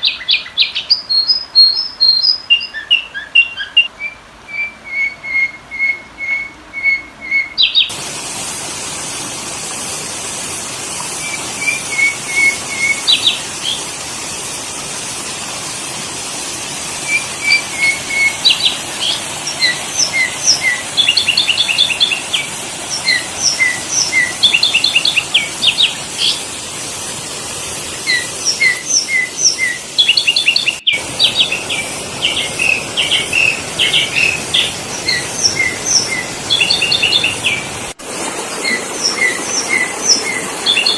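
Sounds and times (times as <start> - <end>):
bird chirping: 0.0 - 8.0, 11.2 - 13.9, 17.0 - 26.5, 28.0 - 37.8, 38.6 - 40.9
steady hiss: 7.9 - 40.9.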